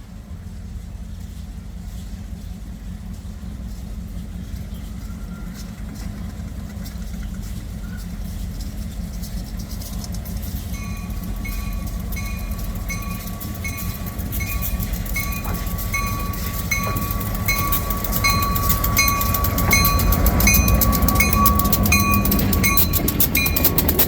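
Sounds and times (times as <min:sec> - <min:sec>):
train rumble: 0:00.0 - 0:24.0
wheels clattering on rail: 0:00.0 - 0:24.0
train bell ringing: 0:09.7 - 0:24.0.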